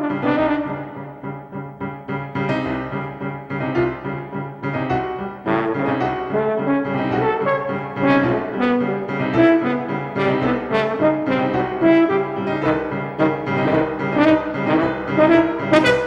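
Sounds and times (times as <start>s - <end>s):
low accompaniment: 0.0s - 16.0s
brass instrument playing short notes: 5.4s - 16.0s.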